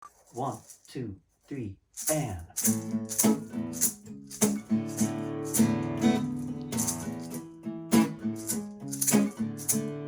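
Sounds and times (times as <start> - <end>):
shaker beat: 0.0 - 0.9, 2.0 - 10.0
guitar playing chords: 2.6 - 10.0.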